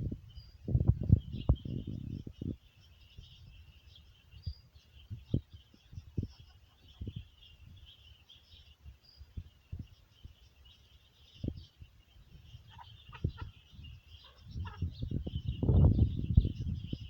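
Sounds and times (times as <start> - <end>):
birds chirping: 0.0 - 17.0
hens calling: 12.4 - 15.4.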